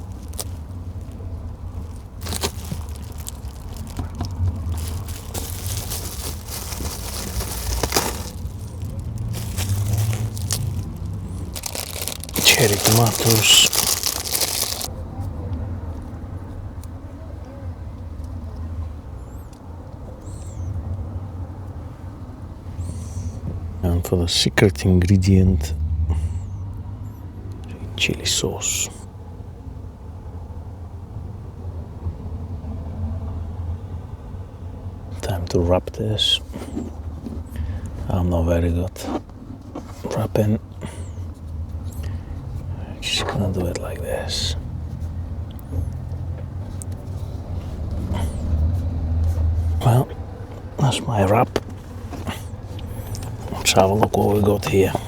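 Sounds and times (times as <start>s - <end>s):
low steady hum: 0.0s - 14.9s
low background rumble: 0.0s - 15.1s
plastic packaging crinkling: 1.8s - 14.9s.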